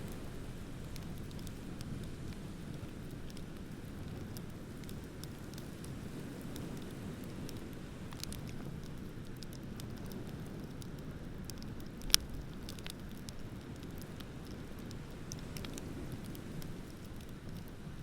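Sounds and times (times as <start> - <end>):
bonfire crackling and popping: 0.0 - 18.0.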